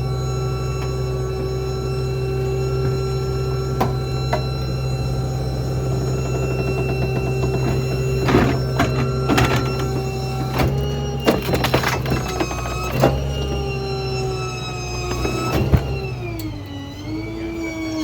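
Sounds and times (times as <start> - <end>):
garbage truck mechanical hum: 0.0 - 18.0
clanks and thuds: 2.7 - 4.8, 6.0 - 13.8.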